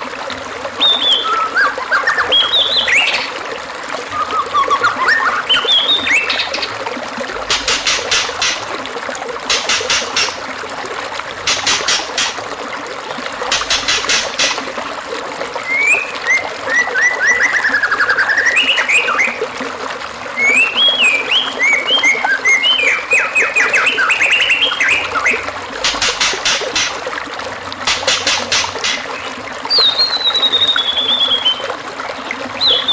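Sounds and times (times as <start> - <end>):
trickling water: 0.0 - 32.9
bird song with trills and whistles: 0.8 - 3.3, 4.1 - 6.7, 15.6 - 19.4, 20.4 - 26.9, 28.1 - 31.7, 32.6 - 32.9
sharp clicking bird notes: 9.5 - 10.4, 11.5 - 12.4, 13.5 - 14.6, 27.9 - 29.9.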